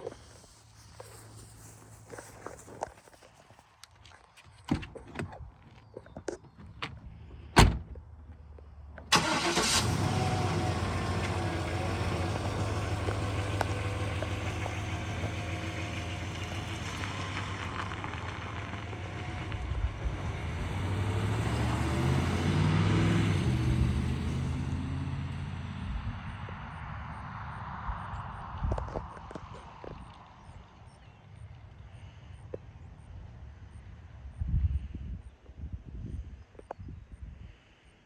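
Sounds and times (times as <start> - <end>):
truck engine cranking and idling: 4.1 - 25.8.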